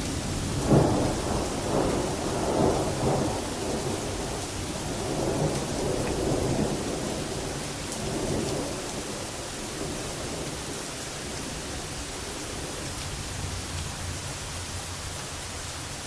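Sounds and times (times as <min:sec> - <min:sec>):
thunder rolling and rumbling: 0:00.0 - 0:10.8
heavy rain hiss: 0:00.0 - 0:16.0.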